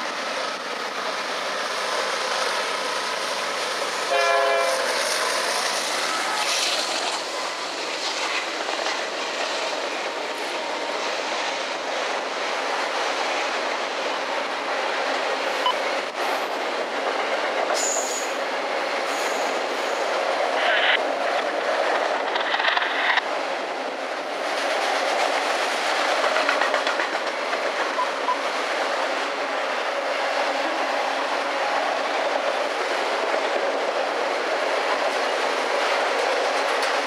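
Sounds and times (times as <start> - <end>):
train wheels clattering on rails: 0.0 - 37.0
train horn blast: 4.1 - 5.0.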